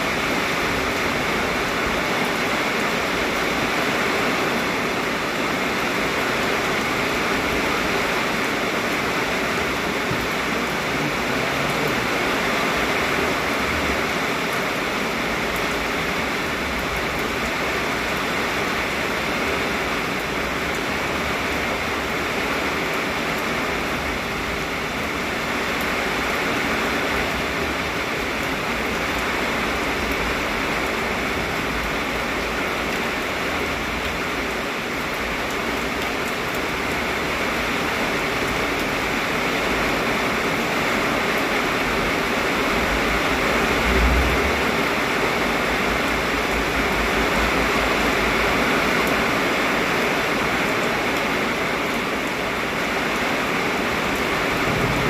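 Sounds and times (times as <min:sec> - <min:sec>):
heavy rain: 0:00.0 - 0:55.0
strong wind rumbling: 0:42.9 - 0:46.6, 0:54.5 - 0:55.0.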